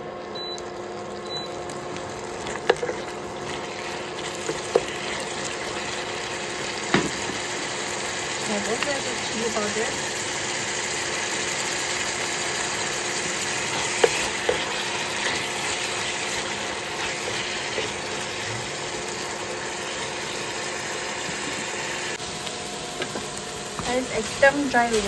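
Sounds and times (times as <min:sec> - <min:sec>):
food sizzling in hot oil: 0:00.1 - 0:25.0
spatula stirring in a pan: 0:02.2 - 0:08.0, 0:10.8 - 0:20.6.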